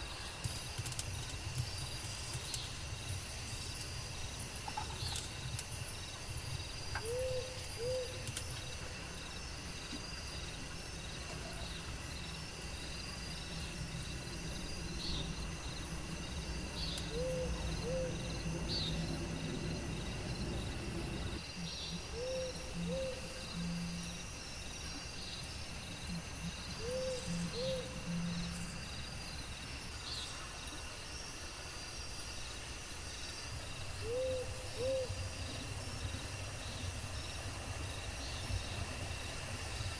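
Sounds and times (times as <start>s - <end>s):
insects droning and chirping: 0.0s - 39.9s
low rumble: 13.3s - 21.4s.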